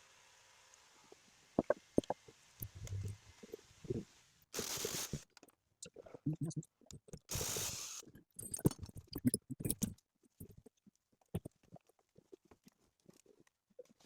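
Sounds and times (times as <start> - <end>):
burst of hiss: 4.5 - 5.2, 7.3 - 8.0.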